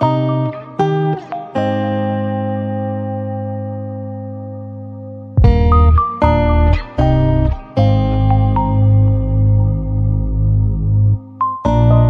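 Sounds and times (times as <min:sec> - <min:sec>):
held music chord ringing: 0:00.0 - 0:12.0.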